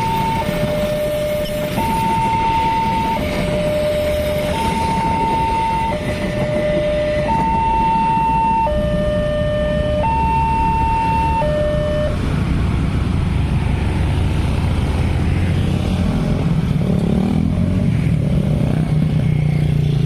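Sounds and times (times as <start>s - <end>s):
two-tone electronic siren: 0.0s - 12.6s.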